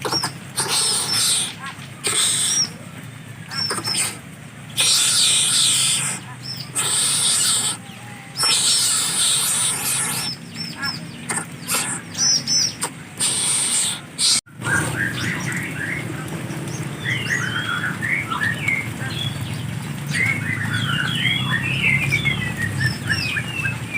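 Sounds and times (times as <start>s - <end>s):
harsh rasping bird bursts: 0.0s - 2.8s, 3.4s - 15.2s.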